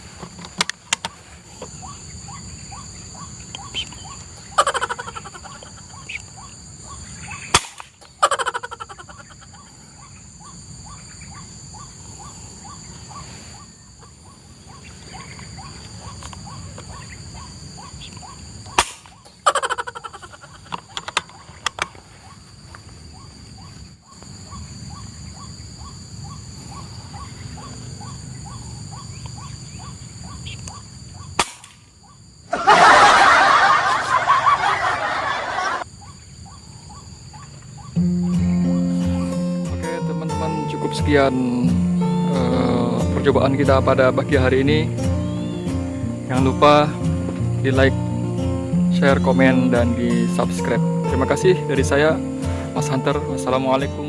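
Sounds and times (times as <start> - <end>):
high insect-like drone: 37.6 - 54.0.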